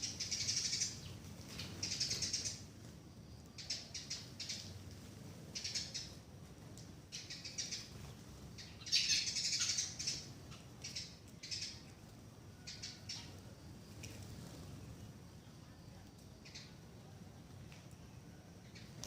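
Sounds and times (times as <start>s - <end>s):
bird chattering trills: 8.6s - 11.8s.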